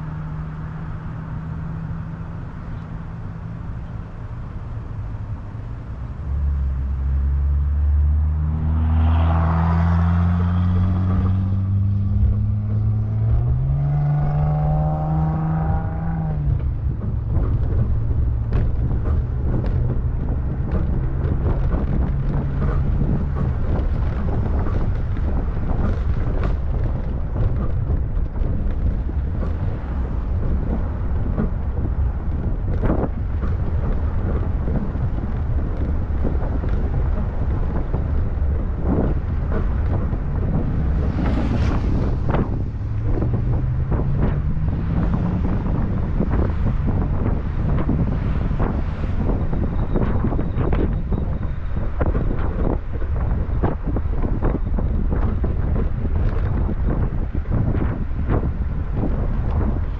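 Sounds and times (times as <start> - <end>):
vehicle engine accelerating: 0.0 - 59.9
wind buffeting microphone: 5.0 - 59.9.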